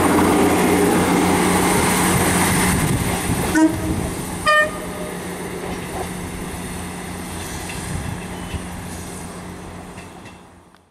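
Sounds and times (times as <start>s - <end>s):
diesel train drone: 0.0s - 10.9s.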